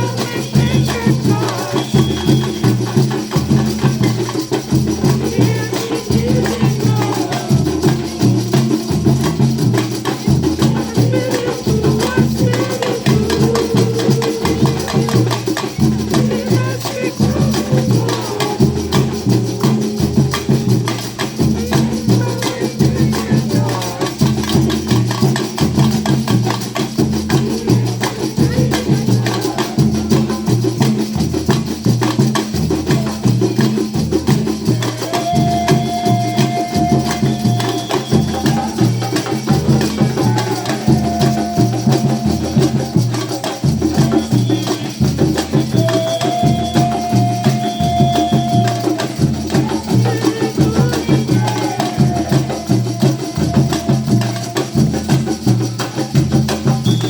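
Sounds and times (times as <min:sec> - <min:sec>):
music with bass beat and percussion: 0:00.0 - 0:57.0.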